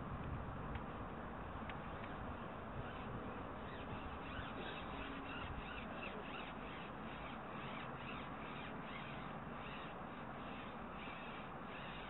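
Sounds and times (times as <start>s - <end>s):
birds calling: 2.7s - 12.0s.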